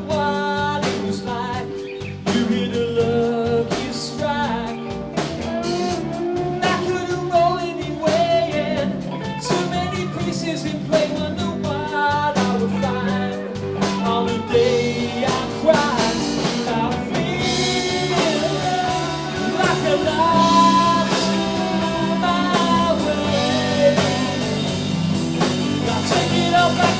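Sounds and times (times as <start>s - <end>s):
drum kit beat: 0.0s - 26.9s
guitar: 0.0s - 26.9s
person singing: 0.0s - 26.9s.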